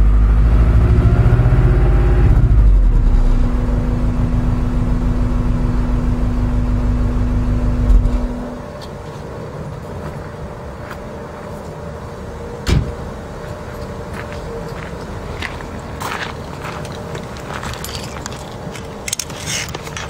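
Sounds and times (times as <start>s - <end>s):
car engine idling: 2.5s - 8.6s.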